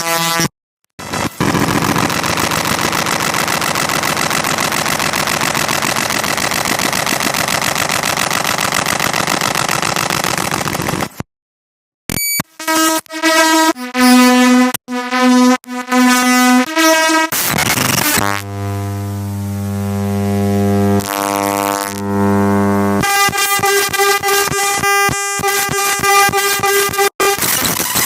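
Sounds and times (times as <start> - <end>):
harsh buzzing noise: 0.0 - 11.0, 12.1 - 28.0
brief beep: 12.1 - 12.4.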